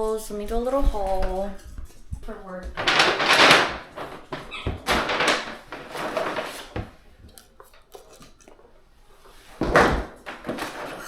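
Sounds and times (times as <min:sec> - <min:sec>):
shopping bag rustling: 0:02.4 - 0:11.0.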